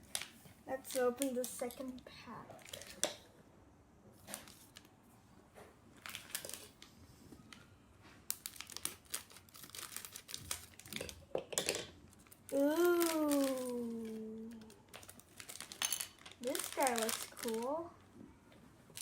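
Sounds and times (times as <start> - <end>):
plastic pack crinkling: 0.0 - 3.2, 4.2 - 4.9, 6.0 - 6.9, 8.3 - 11.3, 12.1 - 17.9.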